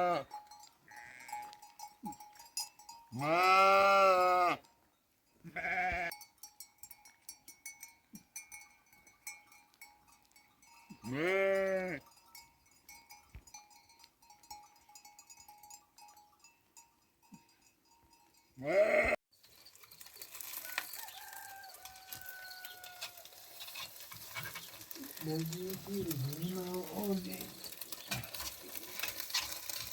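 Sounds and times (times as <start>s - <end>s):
sheep bleating: 0.0s - 0.3s, 3.2s - 4.7s, 5.4s - 6.1s, 11.0s - 12.0s, 18.6s - 19.2s
small bells tinkling: 0.2s - 3.7s, 4.8s - 29.9s.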